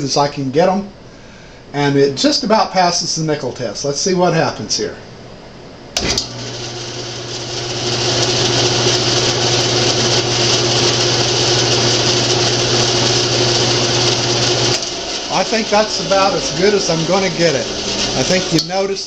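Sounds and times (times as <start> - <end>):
bandsaw running: 6.0 - 19.0.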